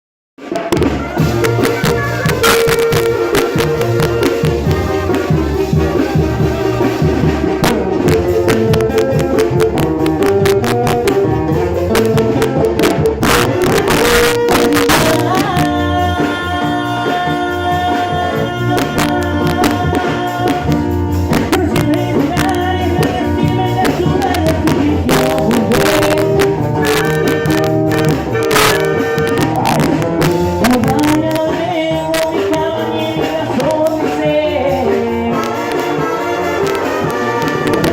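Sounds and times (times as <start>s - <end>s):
band with brass and percussion: 0.4s - 37.9s.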